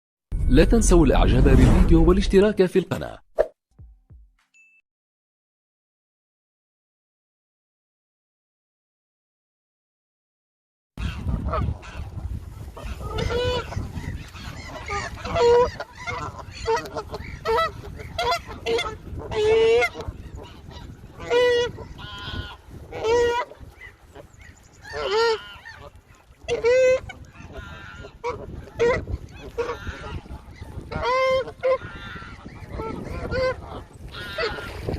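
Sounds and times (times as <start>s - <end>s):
low rumble: 0.3s - 2.4s
geese honking: 12.7s - 34.9s.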